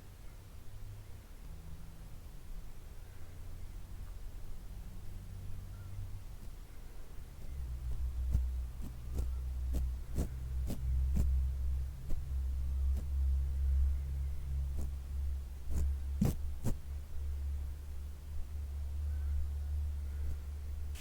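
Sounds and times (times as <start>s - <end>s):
brush against microphone rumble: 6.1s - 18.6s.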